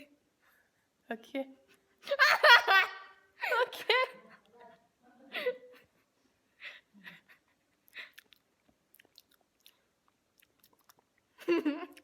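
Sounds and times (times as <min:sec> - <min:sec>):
faint mouth clicks: 0:07.9 - 0:11.2
lip smacks: 0:07.9 - 0:11.3.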